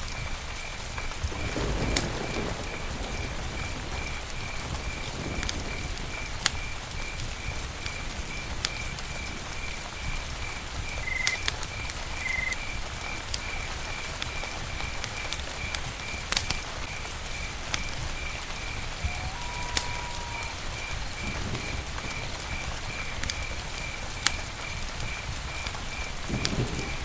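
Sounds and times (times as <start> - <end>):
campfire crackling and popping: 0.0 - 27.0
high repeating chirp: 10.9 - 11.5, 12.2 - 12.6.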